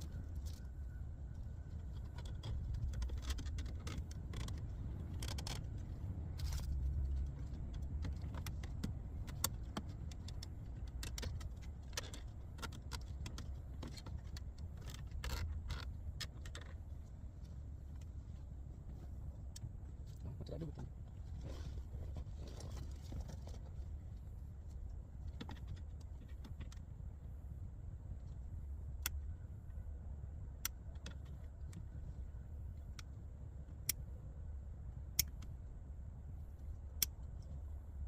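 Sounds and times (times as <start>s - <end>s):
steady low rumble: 0.0s - 38.0s
plastic clicks and rattles: 1.9s - 5.8s, 6.4s - 16.8s.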